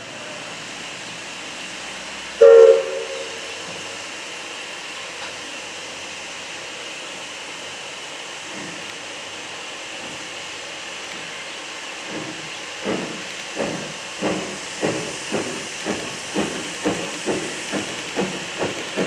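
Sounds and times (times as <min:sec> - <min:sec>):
steady hiss: 0:00.1 - 0:19.0
locomotive whistle blast: 0:02.4 - 0:03.5.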